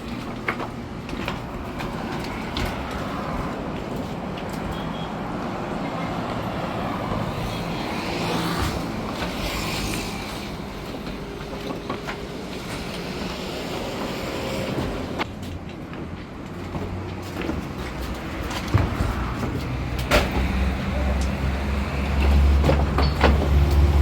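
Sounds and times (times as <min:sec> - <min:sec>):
truck engine rumbling: 0:18.1 - 0:24.0.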